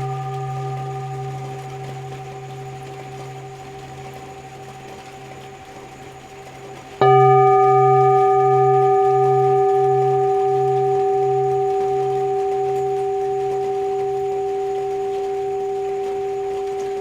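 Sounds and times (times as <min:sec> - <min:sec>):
faint rain hiss: 0:00.0 - 0:17.0
singing bowls ringing: 0:00.0 - 0:17.0.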